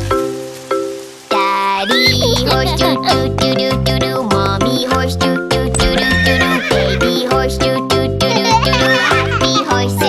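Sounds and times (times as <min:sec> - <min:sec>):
bouncy children's song music: 0:00.0 - 0:10.0
horse whinny: 0:05.8 - 0:07.0.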